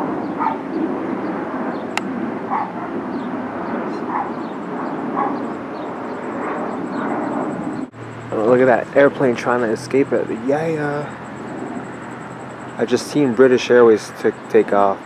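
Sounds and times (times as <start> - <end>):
steady background noise: 0.0 - 15.0
dog barking: 0.4 - 0.7, 2.5 - 3.0, 3.9 - 5.5.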